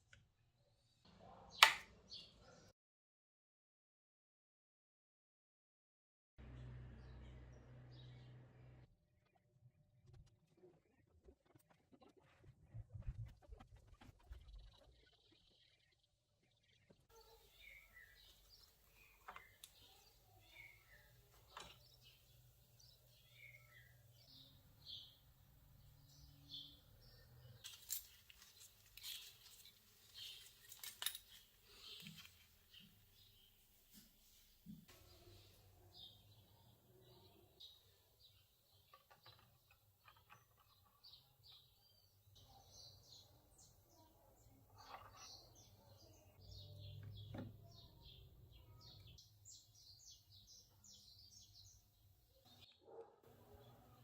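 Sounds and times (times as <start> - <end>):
faint bird chirps: 14.3 - 33.6
bird chirping: 14.4 - 33.7, 34.7 - 54.0
small hard objects clicking: 27.6 - 32.8.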